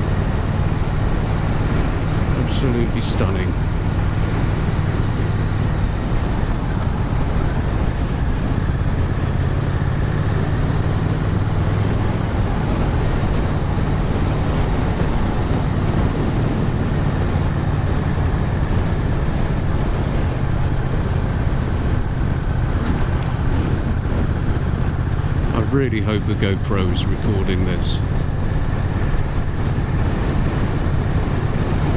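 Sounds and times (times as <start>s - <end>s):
motorcycle engine cruising: 0.0s - 31.9s
wind and road noise: 0.0s - 31.9s.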